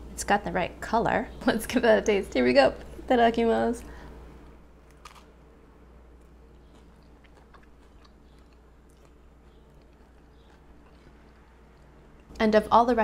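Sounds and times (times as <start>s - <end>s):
low steady hum: 0.0s - 13.0s
person biting into burrito: 4.9s - 5.4s
chewing with crunchy clicks: 6.2s - 12.4s.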